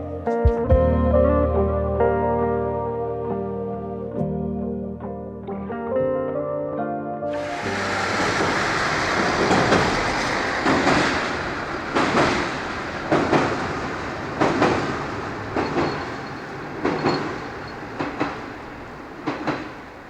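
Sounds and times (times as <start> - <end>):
train rumble: 7.3 - 20.0
train wheels clicking on rail joints: 7.4 - 20.0.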